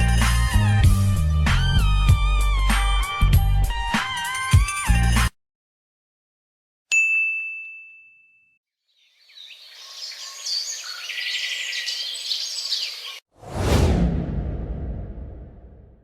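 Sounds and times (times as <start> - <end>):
bright ringing ding: 6.9 - 8.6
birds chirping: 8.9 - 13.2.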